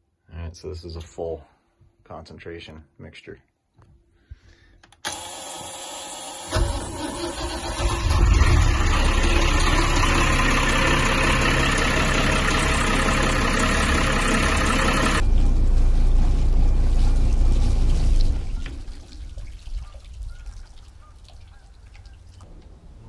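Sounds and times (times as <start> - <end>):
marine diesel engine idling: 6.5 - 18.2.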